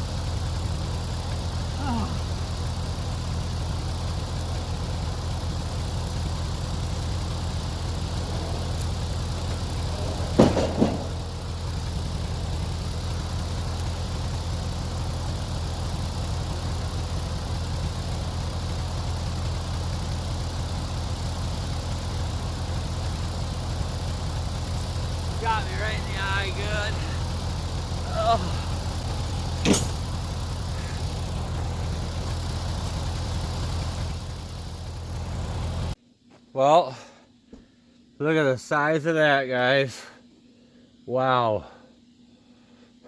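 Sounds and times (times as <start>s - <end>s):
engine idling: 0.0s - 36.0s
sharp knocks: 10.3s - 11.4s.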